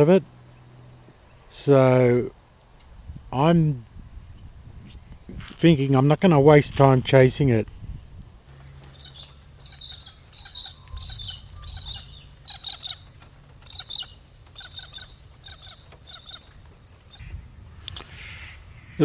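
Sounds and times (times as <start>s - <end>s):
birds chirping: 0.0s - 2.9s, 8.5s - 19.0s.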